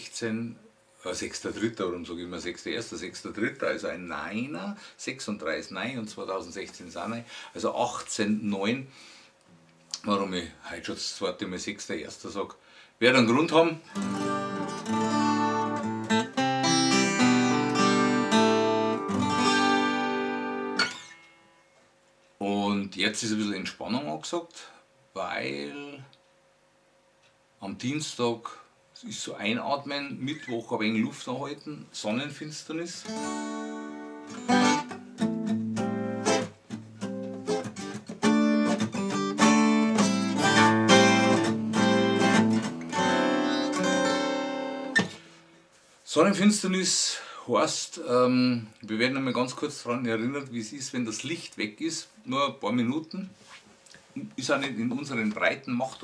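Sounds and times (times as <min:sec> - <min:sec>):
acoustic guitar strummed: 0:13.9 - 0:21.8, 0:33.1 - 0:45.5.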